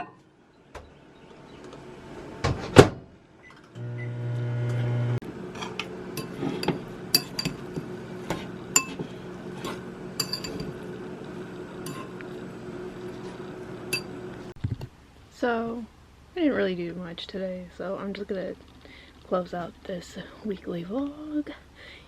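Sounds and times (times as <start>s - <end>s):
appliance hum: 3.7s - 14.6s
dishes and cutlery clinking: 5.6s - 10.8s, 11.8s - 12.2s, 13.9s - 14.2s.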